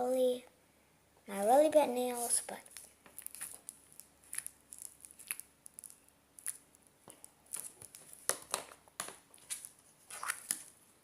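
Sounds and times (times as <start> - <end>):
slime squelching and clicking: 2.6 - 10.6.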